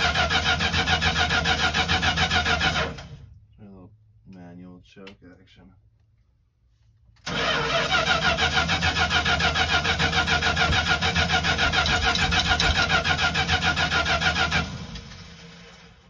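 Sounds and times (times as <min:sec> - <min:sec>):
engine cranking on starter: 0:00.0 - 0:03.3, 0:07.2 - 0:16.0.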